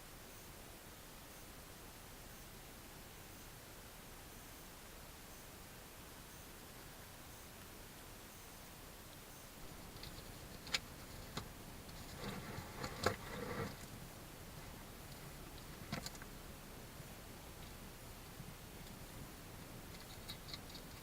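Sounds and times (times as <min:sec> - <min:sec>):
animal scuffling: 0:09.7 - 0:16.4
small animal pecking and tapping: 0:09.9 - 0:13.9, 0:15.1 - 0:16.3, 0:19.6 - 0:21.0.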